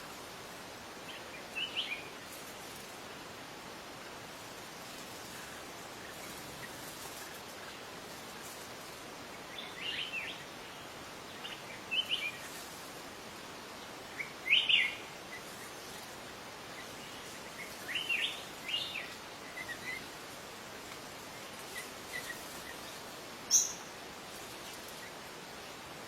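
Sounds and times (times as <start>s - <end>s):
wild birds chirping: 0.0s - 3.2s, 3.8s - 26.0s
steady background hiss: 0.0s - 26.0s.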